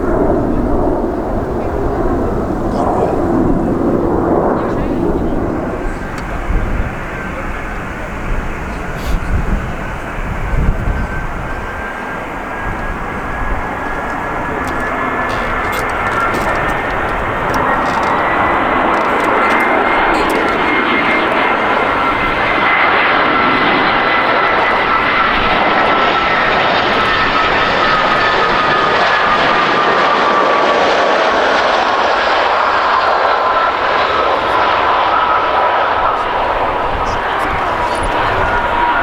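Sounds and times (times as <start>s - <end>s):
jet engines passing close: 0.0s - 39.0s.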